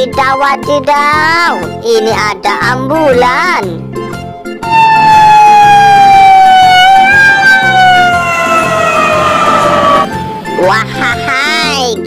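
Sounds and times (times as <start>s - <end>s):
ambulance siren wailing: 4.6s - 10.4s.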